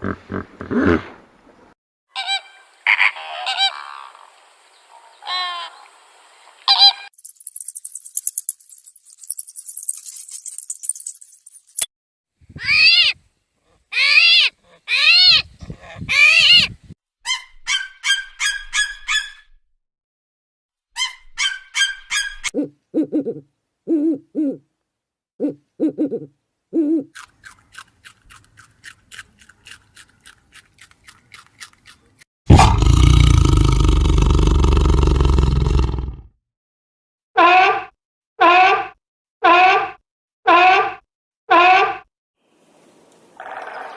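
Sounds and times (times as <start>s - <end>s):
high-pitched animal cries: 2.2s - 4.0s, 12.6s - 13.2s, 13.9s - 19.4s, 37.4s - 42.0s
short chirping calls: 6.8s - 11.9s
loud harsh animal call: 12.6s - 13.2s, 13.9s - 15.4s, 37.4s - 42.1s.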